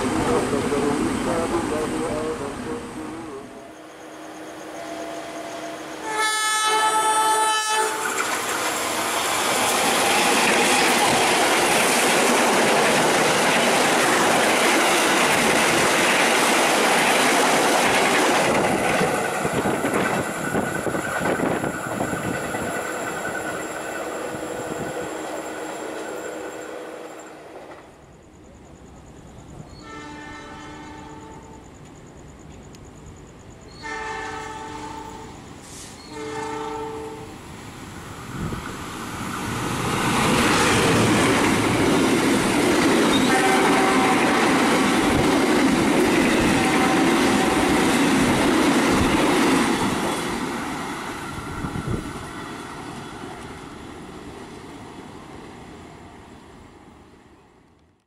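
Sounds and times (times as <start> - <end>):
passenger train rushing past: 0.0 - 57.9
train horn: 4.7 - 8.2, 29.8 - 31.7, 33.8 - 35.4, 36.0 - 37.4, 43.1 - 45.1, 46.4 - 48.0.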